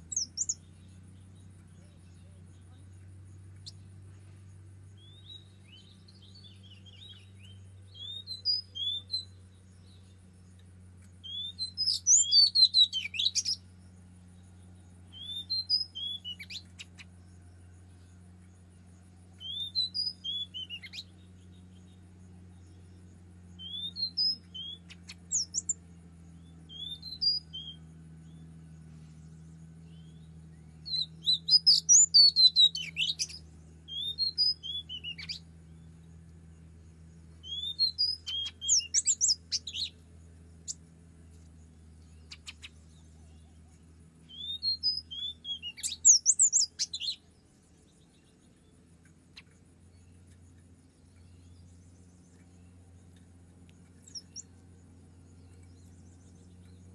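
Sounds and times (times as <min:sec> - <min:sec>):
faint low hum: 0:00.0 - 0:56.9
bird singing whistled phrases: 0:00.1 - 0:00.7, 0:05.0 - 0:10.0, 0:11.2 - 0:13.6, 0:15.1 - 0:17.1, 0:19.4 - 0:21.3, 0:23.5 - 0:25.8, 0:26.7 - 0:27.9, 0:29.9 - 0:35.5, 0:37.4 - 0:40.0, 0:44.2 - 0:47.3, 0:53.9 - 0:54.6.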